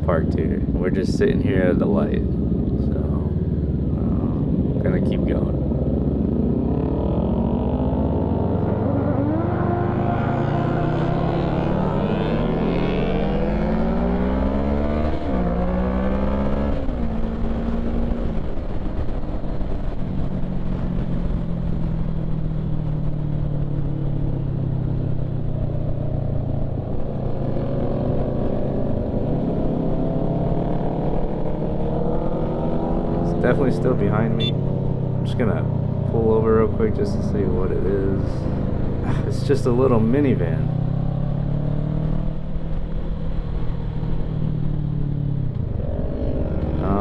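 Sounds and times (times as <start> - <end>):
motorcycle engine accelerating: 0.0 - 47.0.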